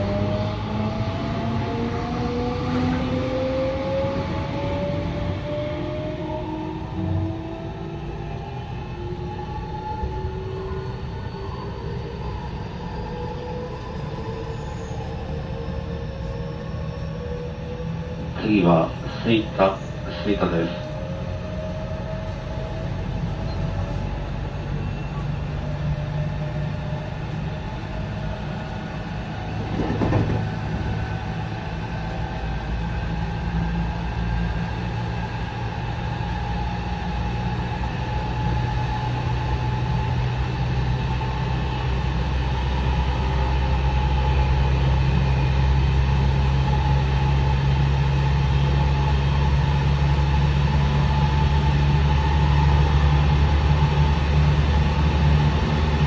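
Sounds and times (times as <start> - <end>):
wheel and rail noise: 19.8 - 56.0
brief knock: 29.7 - 30.5.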